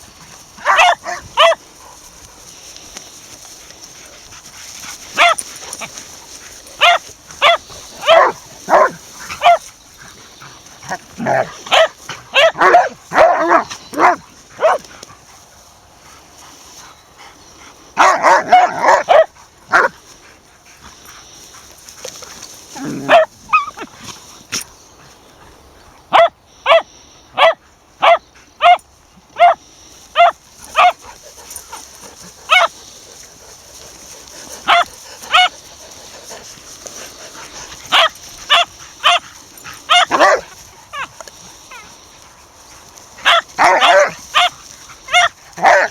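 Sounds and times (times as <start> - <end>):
dogs barking: 0.0 - 2.5, 3.8 - 15.3, 18.0 - 20.0, 22.1 - 24.6, 26.1 - 28.8, 29.4 - 42.0, 42.6 - 45.9.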